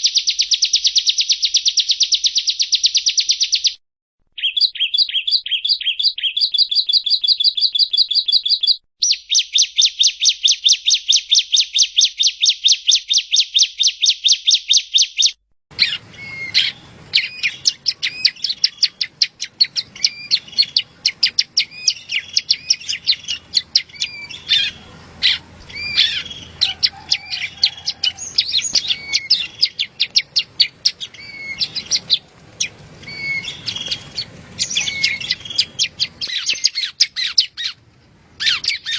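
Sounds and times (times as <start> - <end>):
bird chirps and trills: 0.0 - 3.8, 4.4 - 37.8, 38.4 - 38.9
bird chirping rapidly: 0.0 - 37.8, 38.4 - 38.9.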